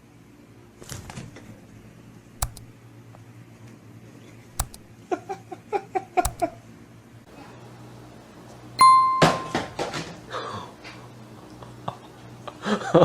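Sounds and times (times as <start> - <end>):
small bell ding: 8.8 - 10.0.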